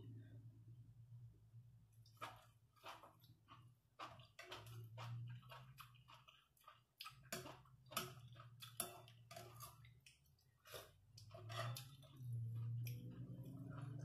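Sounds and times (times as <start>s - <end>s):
person chewing food: 2.0s - 14.0s.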